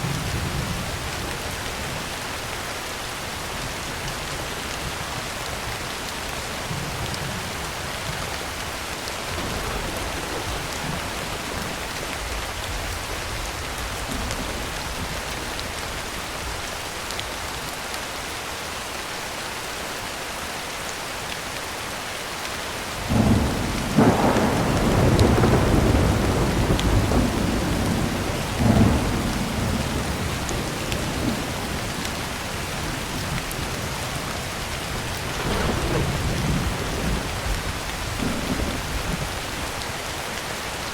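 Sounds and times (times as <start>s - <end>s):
rain on a tin roof: 0.0s - 40.9s
thunder clap and rumble: 9.3s - 16.1s, 23.0s - 39.8s.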